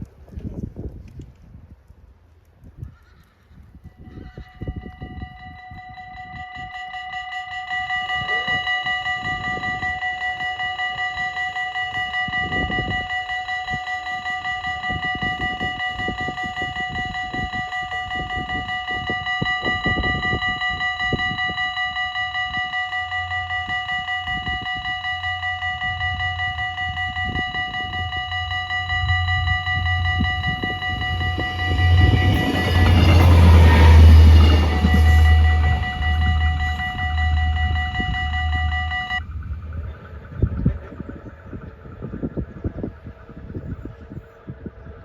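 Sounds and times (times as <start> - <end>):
level crossing bells ringing: 4.4 - 39.2
diesel railcar rumble: 25.4 - 41.0.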